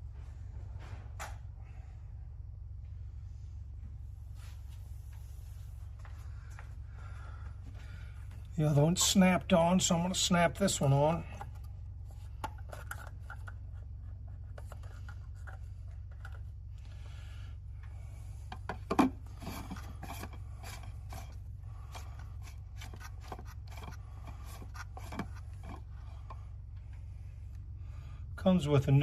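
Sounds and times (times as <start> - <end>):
steady low hum: 0.0 - 29.0
oil filter clicking and scraping: 10.6 - 16.9, 18.4 - 27.0.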